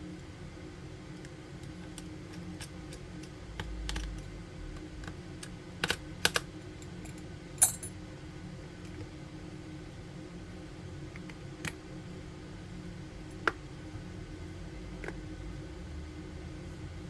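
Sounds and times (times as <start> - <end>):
small tools clicking and tapping: 1.2 - 7.9.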